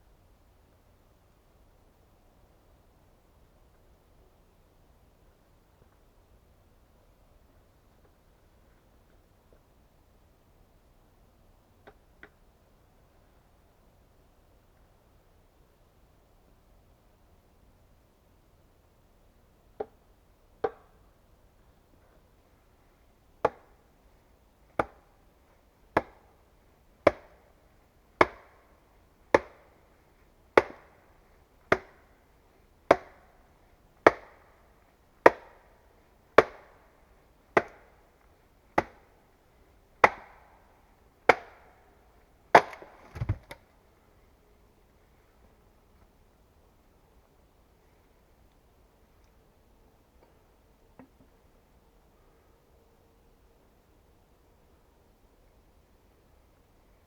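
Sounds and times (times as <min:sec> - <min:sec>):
small knocks: 0:42.6 - 0:43.6
tool striking wood: 0:42.6 - 0:43.6.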